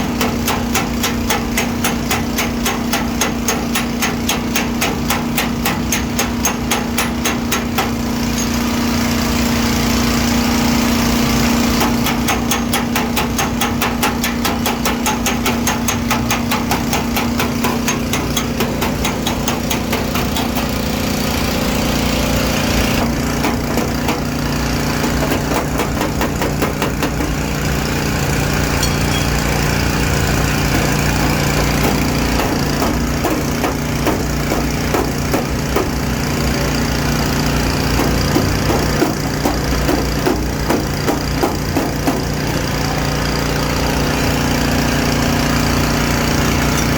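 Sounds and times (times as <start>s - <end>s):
hammer tapping sheet metal: 0.1s - 8.5s, 11.8s - 20.8s, 37.9s - 42.6s
steady machine hum: 26.6s - 46.9s.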